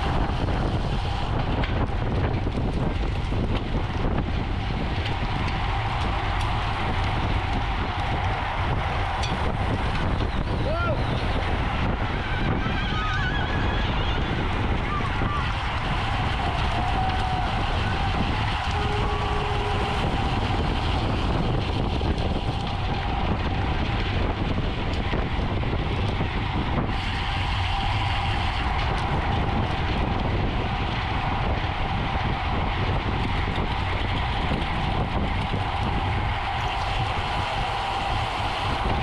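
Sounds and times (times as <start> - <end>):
wind rush on microphone: 0.0 - 39.0
tyre rumble on road: 14.2 - 39.0.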